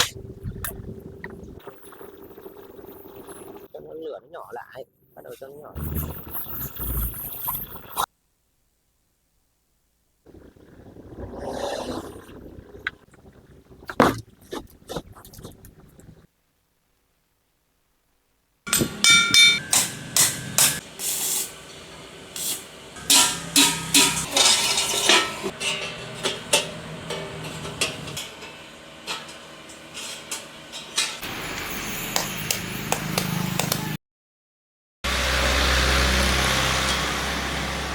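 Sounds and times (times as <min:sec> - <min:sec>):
hissing: 0:10.3 - 0:16.3
hammer striking metal: 0:18.7 - 0:21.0, 0:23.0 - 0:31.3.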